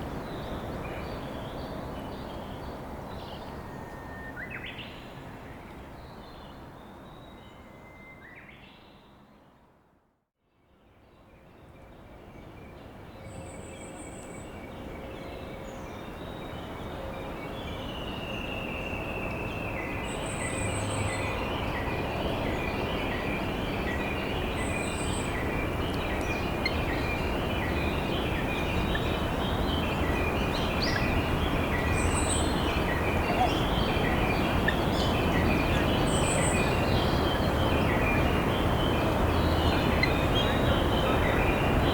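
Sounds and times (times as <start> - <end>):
wild birds singing: 13.4 - 41.9
short bird calls: 32.3 - 36.5.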